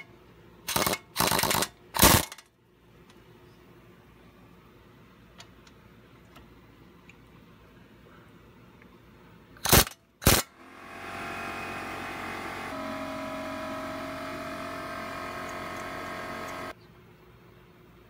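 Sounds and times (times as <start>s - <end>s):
impact wrench bursts: 0.7s - 2.4s, 9.6s - 16.8s
steady hum of held tones: 10.5s - 18.0s.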